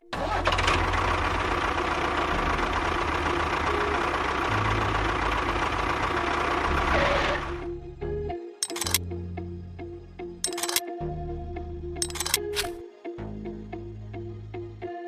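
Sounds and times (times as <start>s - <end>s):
motor running steadily: 1.2s - 7.7s.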